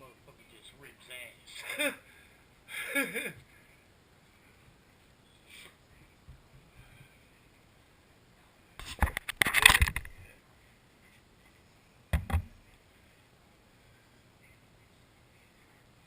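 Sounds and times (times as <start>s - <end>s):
quick knocks: 12.1s - 12.6s.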